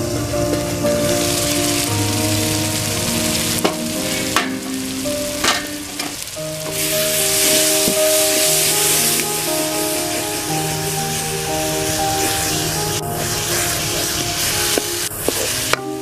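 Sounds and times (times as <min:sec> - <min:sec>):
curry sizzling in a pan: 0:00.0 - 0:16.0
utensils clinking on a pan: 0:03.6 - 0:06.8.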